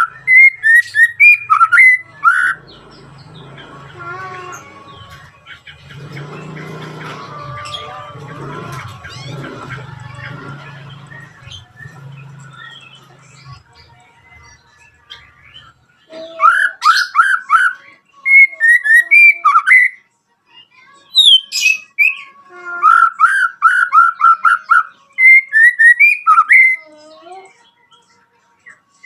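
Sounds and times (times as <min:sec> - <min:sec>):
bird singing whistled notes: 0:00.0 - 0:02.9, 0:15.1 - 0:20.0, 0:21.2 - 0:26.8.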